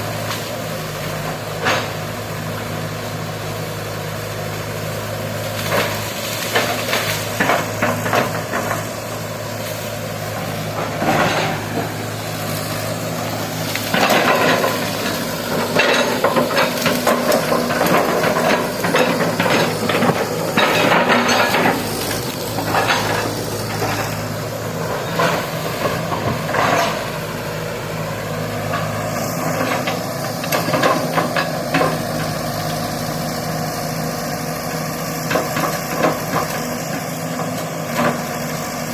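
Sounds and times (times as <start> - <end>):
excavator diesel engine running: 0.0 - 38.9
clanks knocks and scrapes: 10.3 - 12.0, 13.7 - 24.2, 25.0 - 27.1, 28.7 - 32.3.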